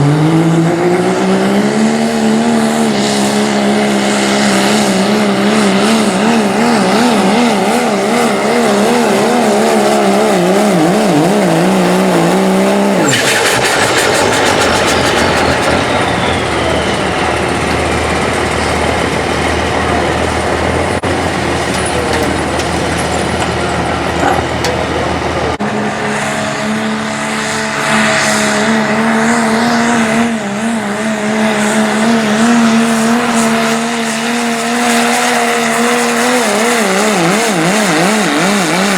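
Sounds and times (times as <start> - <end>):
broad rushing noise: 0.0 - 38.8
truck engine at full throttle: 0.0 - 38.9
whistle falling in pitch: 13.1 - 17.5
low rumble: 13.2 - 21.0.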